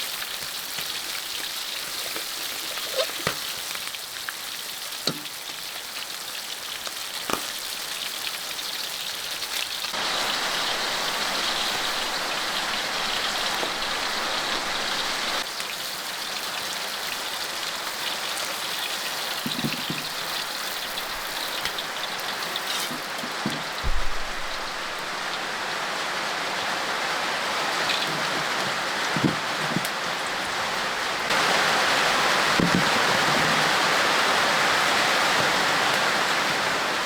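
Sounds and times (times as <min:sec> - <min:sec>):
rain falling: 0:00.0 - 0:37.0
low knocks: 0:23.8 - 0:25.2.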